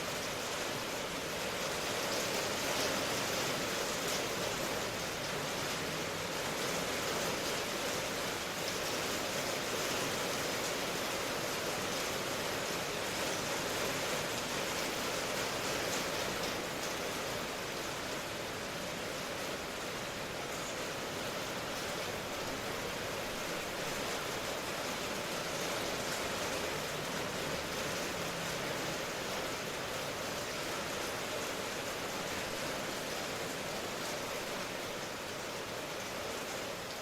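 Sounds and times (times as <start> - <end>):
steady rain falling: 0.0 - 37.0.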